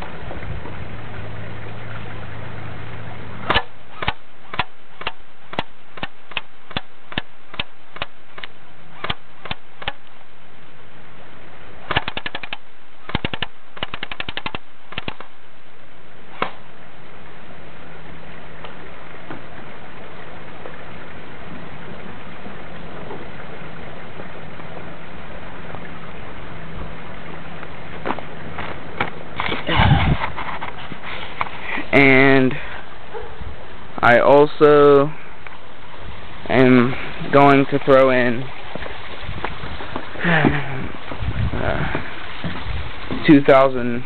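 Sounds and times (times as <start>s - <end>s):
airsoft gun firing: 3.5s - 8.1s, 11.9s - 15.2s
steady hiss: 22.6s - 44.0s.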